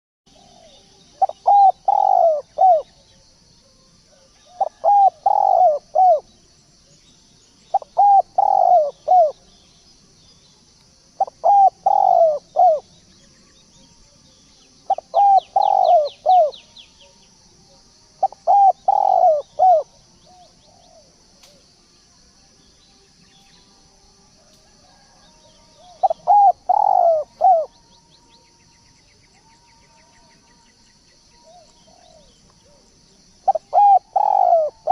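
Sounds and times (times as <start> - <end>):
turtledove cooing: 0.4 - 2.9, 4.6 - 6.2, 7.8 - 9.3, 11.2 - 12.8, 14.9 - 16.6, 18.2 - 19.8, 25.8 - 27.7, 33.5 - 34.9.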